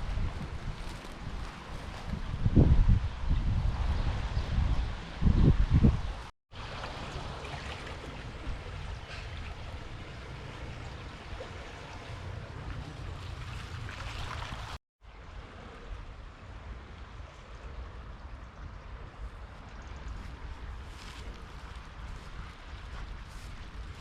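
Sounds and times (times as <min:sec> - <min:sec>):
wind buffeting microphone: 0:00.0 - 0:14.8, 0:17.8 - 0:24.0
rushing river water: 0:06.5 - 0:18.2.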